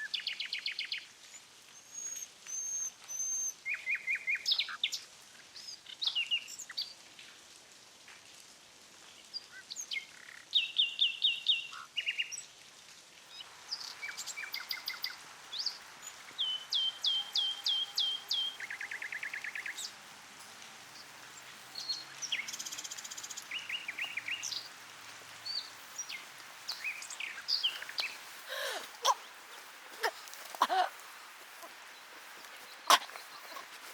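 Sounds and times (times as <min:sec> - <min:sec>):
songbirds chirping: 0:00.0 - 0:07.1, 0:09.1 - 0:12.6, 0:13.2 - 0:33.9
steady background hiss: 0:12.6 - 0:33.9.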